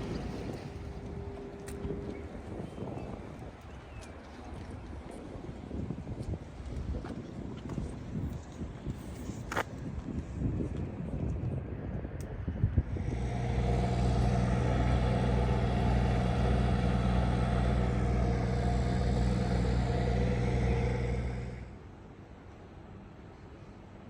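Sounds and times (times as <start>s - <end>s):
vehicle engine running: 12.9s - 21.8s.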